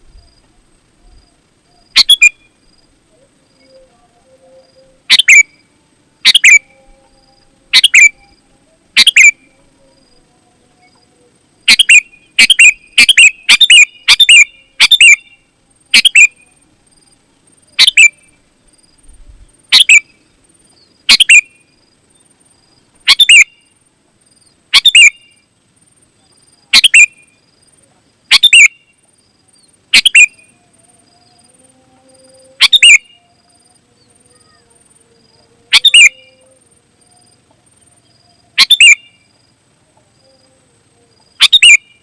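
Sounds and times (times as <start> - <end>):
bird giving short loud calls: 11.7 - 15.2, 19.7 - 20.0, 32.6 - 33.2, 35.7 - 36.4.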